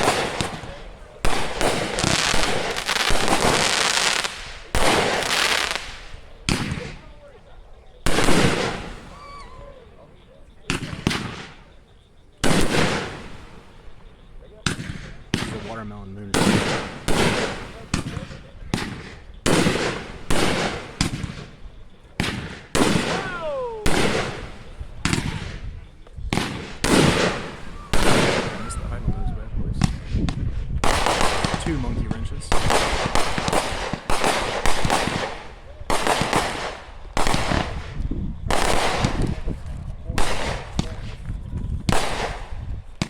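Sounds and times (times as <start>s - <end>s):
falling firework whistle: 0.0s - 7.1s, 8.0s - 11.8s, 22.2s - 25.6s, 26.3s - 29.4s
fireworks bangs: 0.0s - 43.0s.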